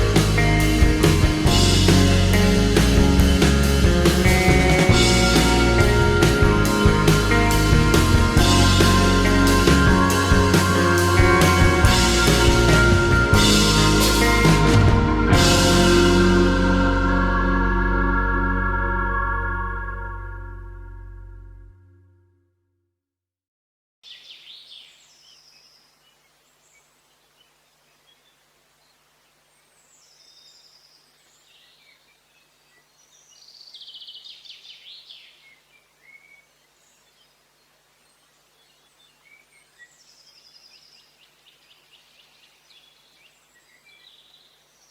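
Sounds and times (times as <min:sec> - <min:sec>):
songbirds calling: 0:24.1 - 0:44.9.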